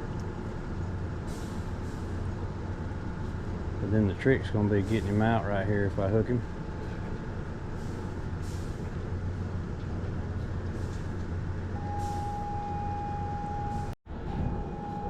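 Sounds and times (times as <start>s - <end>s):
low mechanical hum: 0.0s - 15.0s
high whine: 11.7s - 15.0s.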